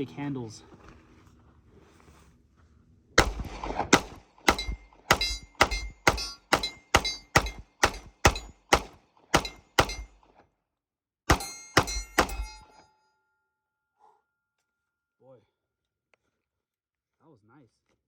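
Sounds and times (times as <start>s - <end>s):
pistol shots: 3.2s - 10.3s, 11.3s - 12.6s.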